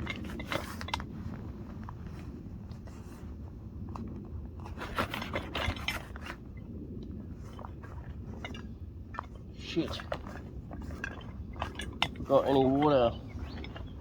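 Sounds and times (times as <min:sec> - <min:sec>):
backpack rustling and scraping: 0:00.0 - 0:06.6.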